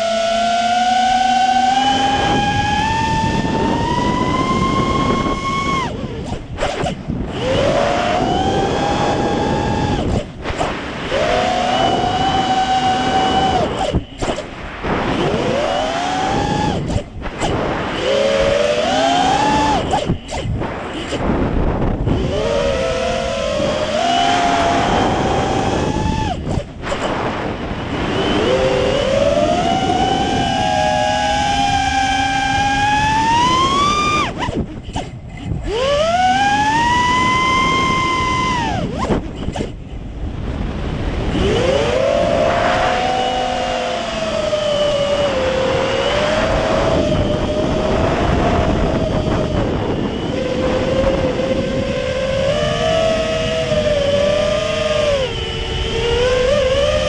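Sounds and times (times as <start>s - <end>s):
quadcopter motors whining: 0.0s - 57.0s
wind noise: 0.0s - 57.0s.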